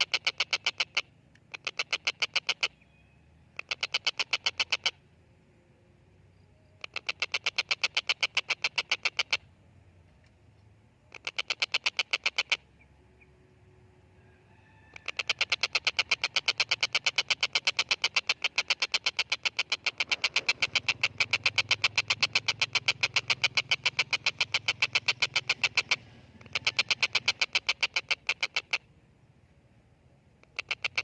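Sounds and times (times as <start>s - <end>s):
kingfisher harsh repeated calls: 0.0s - 2.8s, 3.6s - 5.0s, 6.8s - 9.4s, 11.1s - 12.8s, 14.9s - 28.9s, 30.5s - 31.0s.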